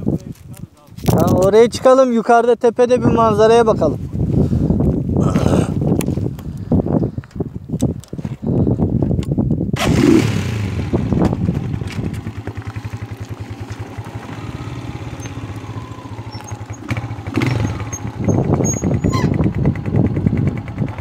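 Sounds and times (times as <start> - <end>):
motorcycle engine putter: 15.0 - 21.0.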